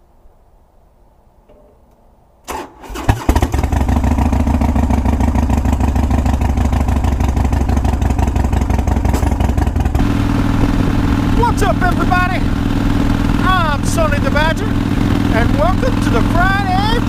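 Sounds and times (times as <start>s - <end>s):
engine starter cranking: 2.4s - 4.0s
motorcycle engine idling: 3.1s - 17.0s.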